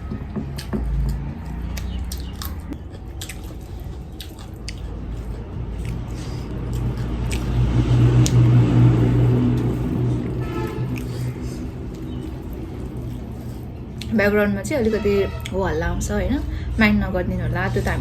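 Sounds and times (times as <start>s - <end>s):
person chewing food: 0.0s - 14.3s
low rumble of traffic: 0.0s - 18.0s.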